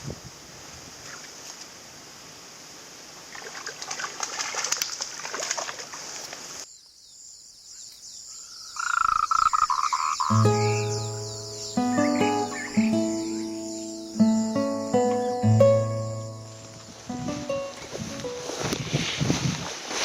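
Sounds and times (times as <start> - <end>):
guitar music: 10.3 - 18.7.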